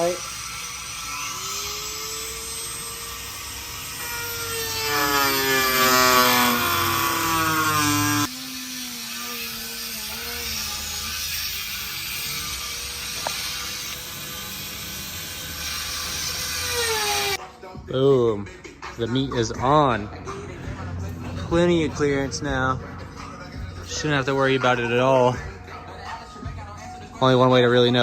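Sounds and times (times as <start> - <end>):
fainter lower whine: 0.0 - 17.4
power tool whining: 0.0 - 17.4.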